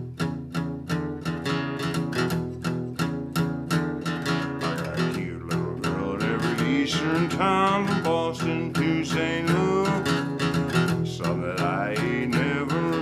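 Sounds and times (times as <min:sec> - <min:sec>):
acoustic guitar strumming: 0:00.0 - 0:13.0
person singing: 0:04.6 - 0:13.0.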